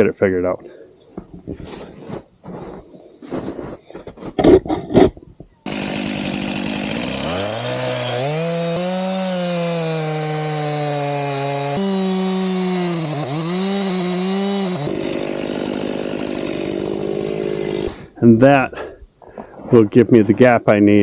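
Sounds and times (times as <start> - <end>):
chainsaw cutting into log: 5.7 - 18.1.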